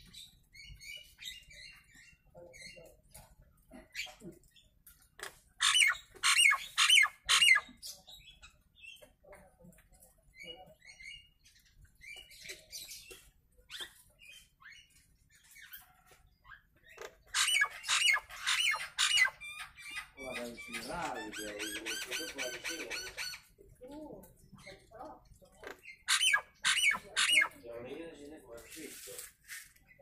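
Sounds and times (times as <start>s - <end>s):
bird chattering: 5.2s - 9.1s, 16.5s - 23.6s, 24.6s - 27.7s.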